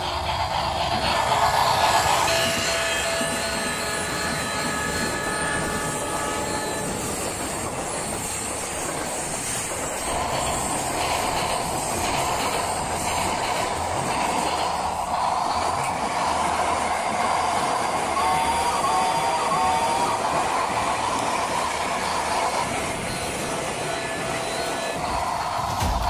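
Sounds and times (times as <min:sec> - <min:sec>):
train rumble and hiss: 0:00.0 - 0:26.0.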